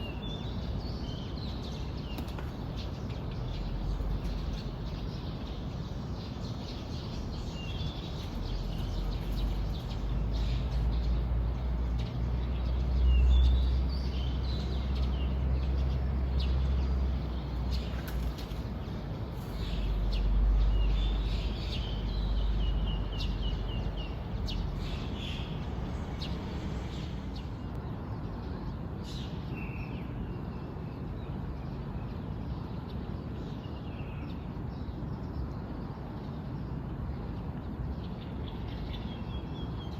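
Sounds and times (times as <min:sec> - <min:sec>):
small birds chirping: 0:00.0 - 0:30.5.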